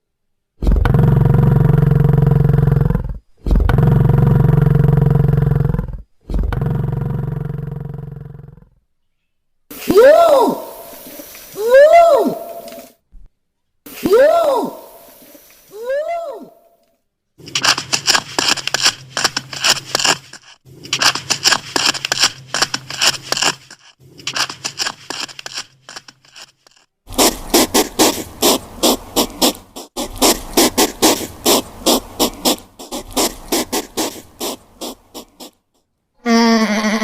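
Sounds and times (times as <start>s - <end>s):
rapid dry scratching clicks: 17.4s - 35.6s.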